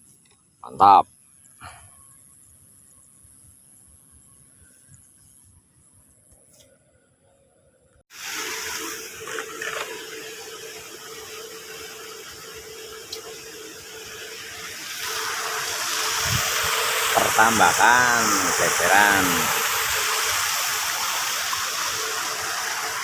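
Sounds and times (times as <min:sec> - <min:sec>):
water rushing: 0:08.1 - 0:23.0.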